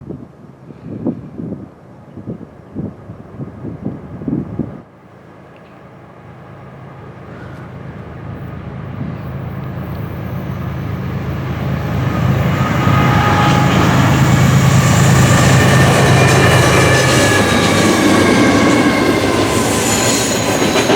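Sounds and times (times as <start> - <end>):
diesel locomotive engine: 3.1 - 20.9.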